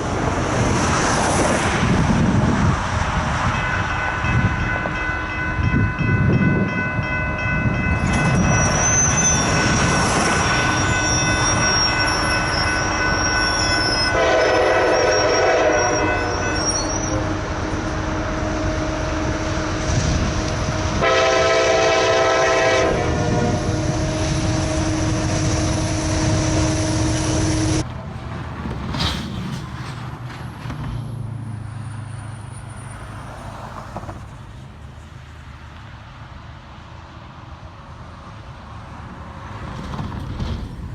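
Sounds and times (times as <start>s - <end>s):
freight train rumble: 0.0s - 40.9s
high wheel squeal: 7.9s - 17.7s
locomotive air horn: 9.2s - 20.3s, 20.9s - 27.8s.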